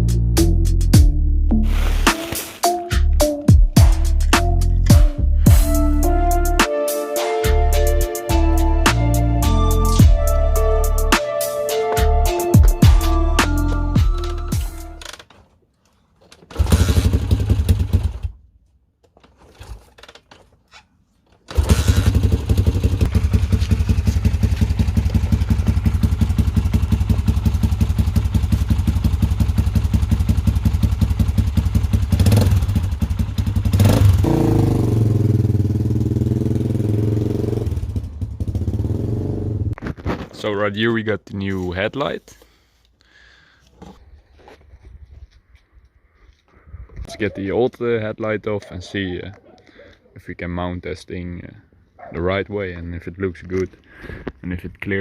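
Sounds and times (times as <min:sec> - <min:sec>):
dirt bike engine starting and revving: 0:16.4 - 0:18.4, 0:21.5 - 0:39.8.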